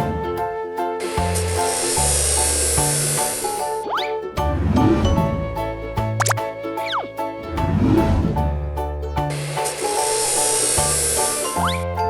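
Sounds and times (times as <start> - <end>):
bouncy cartoon music: 0.0 - 12.0
rising whistle-like glide: 3.6 - 7.3
loud hissing sound effect: 9.6 - 11.4.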